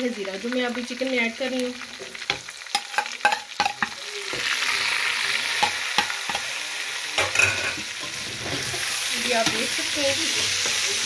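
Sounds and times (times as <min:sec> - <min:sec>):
food sizzling in oil: 0:00.0 - 0:11.0
metal spoon clinking on pot: 0:02.7 - 0:03.9.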